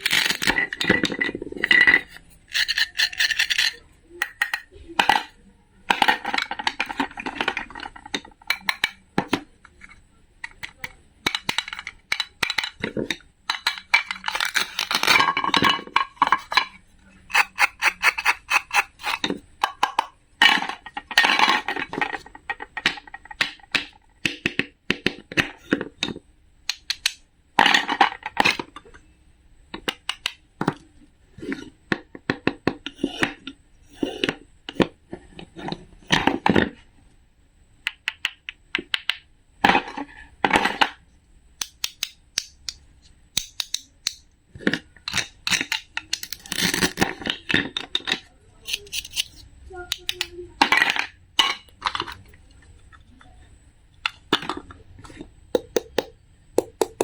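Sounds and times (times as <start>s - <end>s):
hard objects clicking and clattering: 0.0s - 29.0s, 41.6s - 57.0s.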